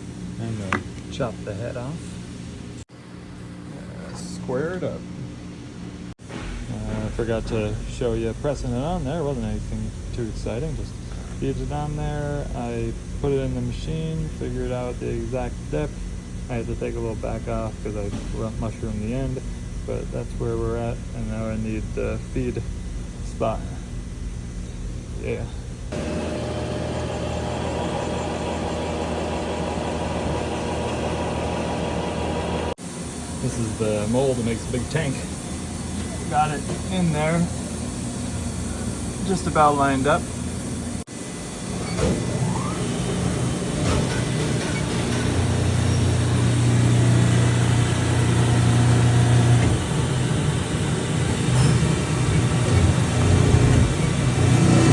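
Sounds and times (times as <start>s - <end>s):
machine tool humming and whirring: 25.9s - 54.9s.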